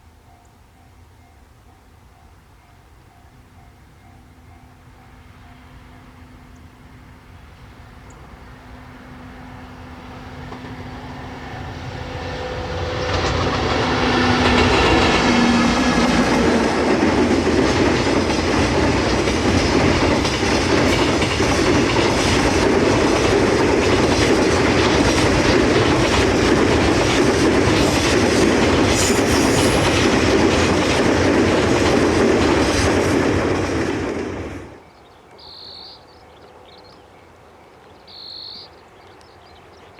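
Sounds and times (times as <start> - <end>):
freight train passing: 0.0 - 39.9
train wheels clattering: 10.3 - 34.8.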